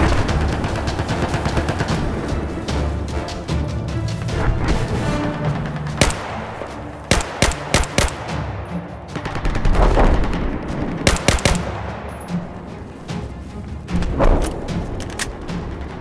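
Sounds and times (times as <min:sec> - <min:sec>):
gunshots: 0:00.0 - 0:02.5, 0:05.6 - 0:12.1
background music: 0:00.0 - 0:16.0.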